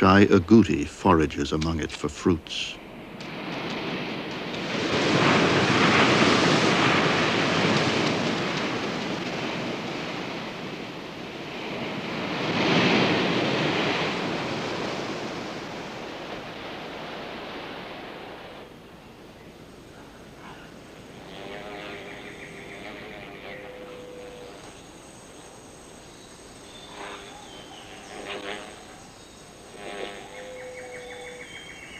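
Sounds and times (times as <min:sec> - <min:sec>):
ocean waves breaking on beach: 0:00.0 - 0:18.8.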